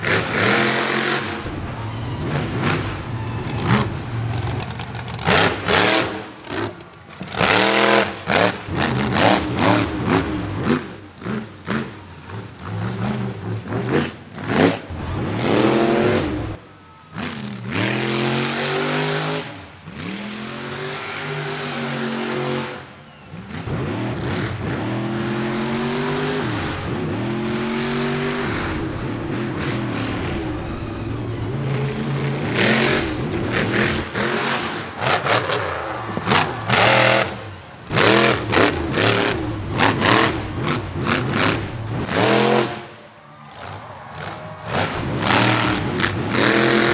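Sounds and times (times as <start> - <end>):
loud sharp bangs: 0.0 - 12.1
monster truck engine revving: 0.0 - 46.9.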